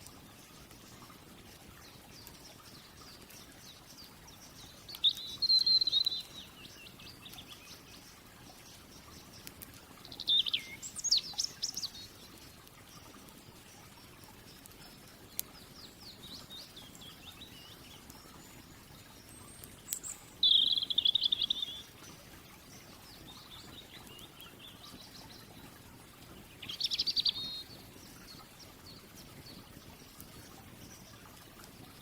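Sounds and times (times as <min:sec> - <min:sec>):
soft steady background hiss: 0:00.0 - 0:32.0
songbird trills: 0:01.8 - 0:25.8, 0:26.4 - 0:31.3
falling bird song phrases: 0:02.1 - 0:13.1, 0:15.5 - 0:25.7, 0:26.3 - 0:29.7.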